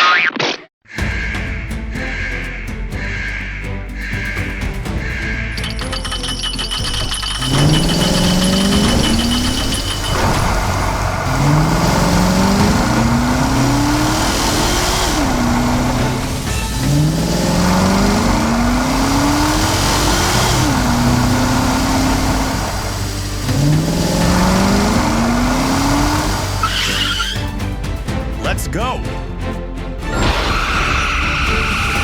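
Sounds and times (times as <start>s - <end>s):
vehicle engine accelerating: 5.6s - 27.6s.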